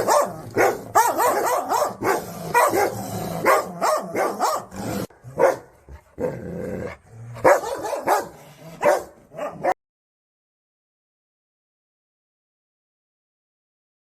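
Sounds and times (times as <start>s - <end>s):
dog barking: 0.0s - 4.8s, 5.4s - 5.7s, 7.4s - 9.8s
dog growling: 2.1s - 7.5s.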